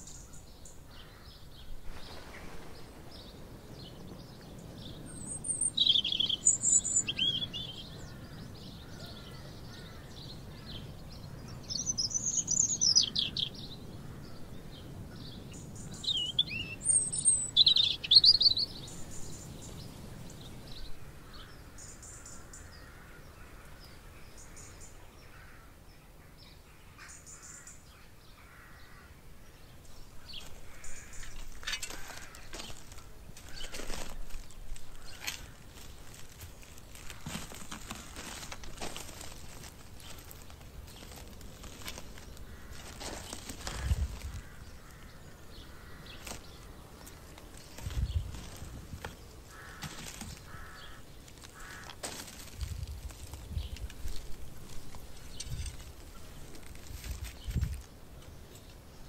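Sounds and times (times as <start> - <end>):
songbird warbling: 4.9 - 10.7, 11.3 - 14.4, 15.4 - 20.9, 49.4 - 52.0.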